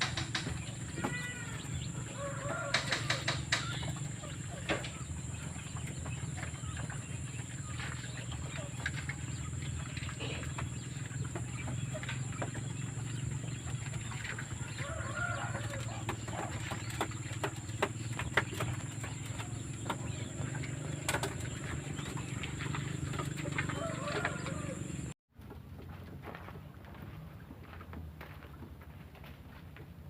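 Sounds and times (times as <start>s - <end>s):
taps and scratches: 0.0s - 1.6s, 2.5s - 5.1s.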